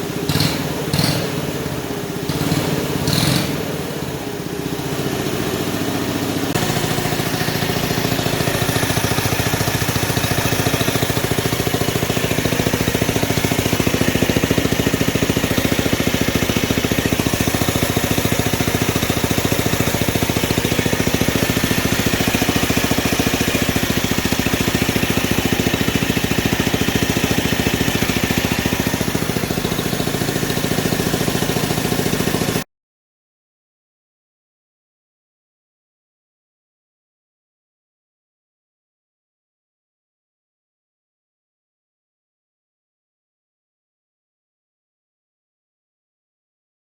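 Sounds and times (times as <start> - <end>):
small combustion engine running: 0.0 - 32.7.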